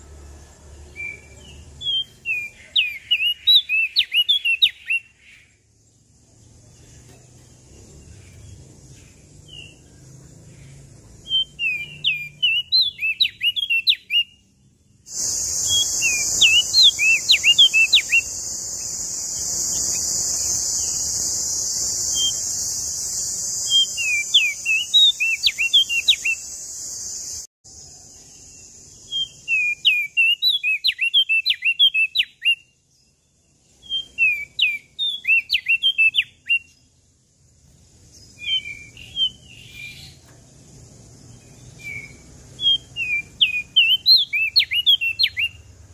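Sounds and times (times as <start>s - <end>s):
warbler singing whistled notes: 0.0s - 45.9s
loud high-pitched hiss: 15.1s - 27.5s.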